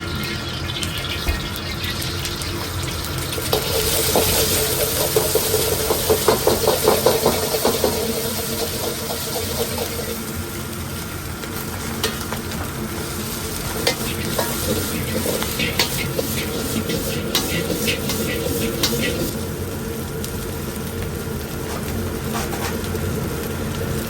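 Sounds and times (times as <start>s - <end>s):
fried rice sizzling in a pan: 0.0s - 24.0s
utensil knocking on pan: 5.1s - 8.0s.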